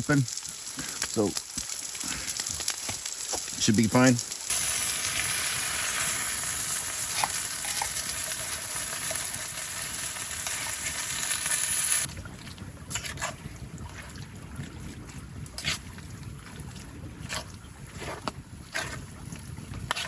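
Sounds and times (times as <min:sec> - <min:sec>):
food sizzling in a pan: 0:00.0 - 0:12.1.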